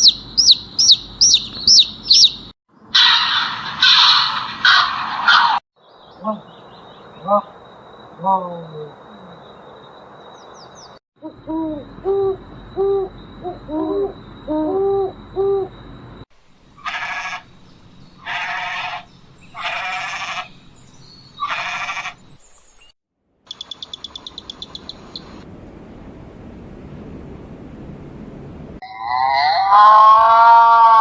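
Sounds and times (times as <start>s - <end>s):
harsh animal calls: 18.2s - 20.5s, 21.4s - 22.2s, 23.5s - 25.4s, 28.8s - 31.0s
rapid clicking trill: 23.5s - 25.4s.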